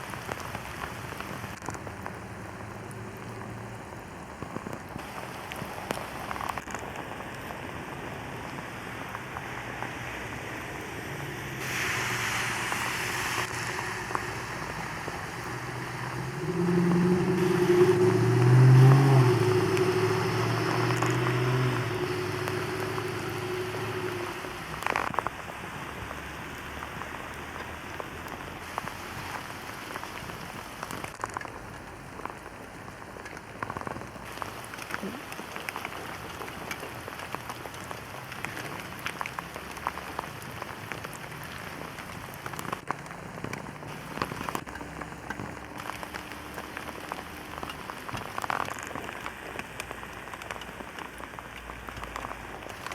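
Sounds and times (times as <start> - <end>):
rain falling with drops ticking: 0.0 - 52.9
engine hum: 1.5 - 29.0.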